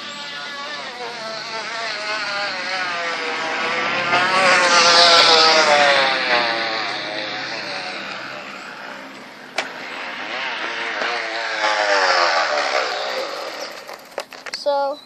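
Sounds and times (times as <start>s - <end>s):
plastic bottle slapping bicycle spokes: 13.7s - 14.6s.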